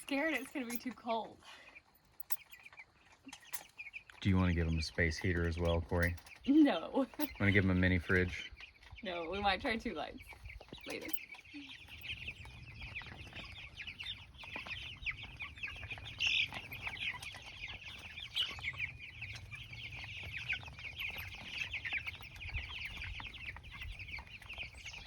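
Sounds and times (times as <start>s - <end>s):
young chickens peeping: 0.0s - 25.0s.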